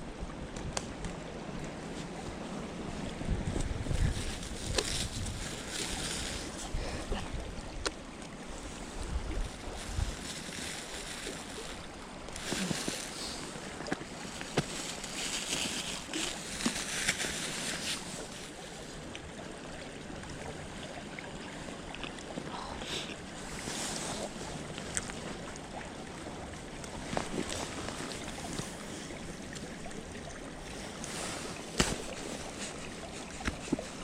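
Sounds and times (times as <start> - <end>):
footsteps rustling through woods: 1.9 - 6.8, 8.5 - 18.6, 30.7 - 34.0
wind buffeting microphone: 2.3 - 7.9, 8.5 - 10.4.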